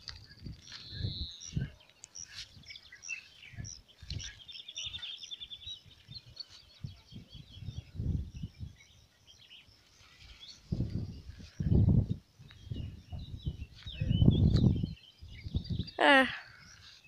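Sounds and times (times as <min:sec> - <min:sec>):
small birds chirping: 0:00.0 - 0:17.0
low thumps on microphone: 0:10.7 - 0:15.8.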